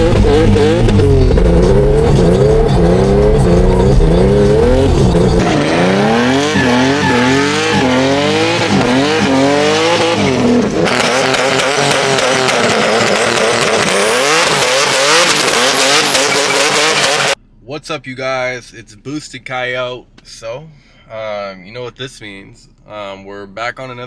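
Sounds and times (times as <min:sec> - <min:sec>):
car engine revving hard: 0:00.0 - 0:17.4
tires squealing: 0:00.0 - 0:17.4.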